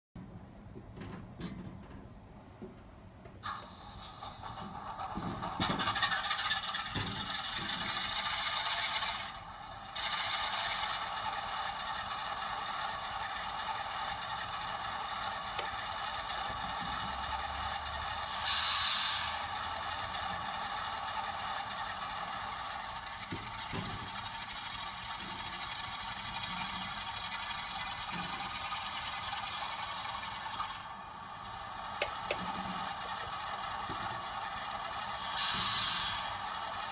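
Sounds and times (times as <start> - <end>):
tinny diesel locomotive engine: 0.2 - 36.9
short hiss: 35.3 - 36.3.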